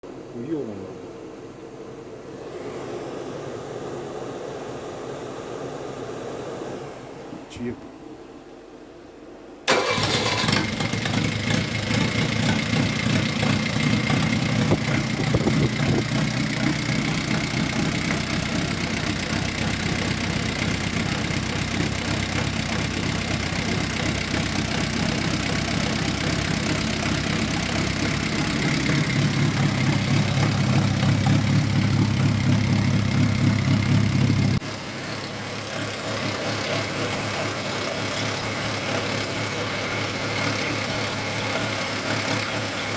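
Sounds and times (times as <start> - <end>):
diesel engine starting and running: 9.6 - 42.9.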